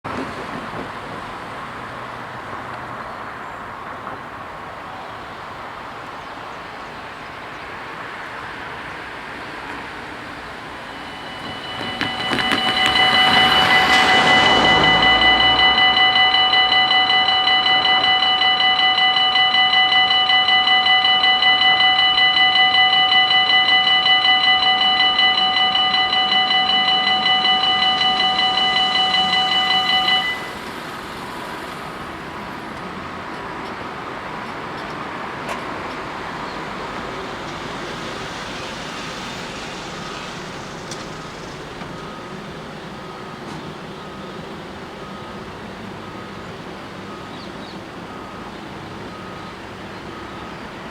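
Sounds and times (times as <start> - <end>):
road traffic noise: 0.0 - 50.9
level crossing warning bells: 3.7 - 50.9
faint repeating tone: 9.6 - 30.8.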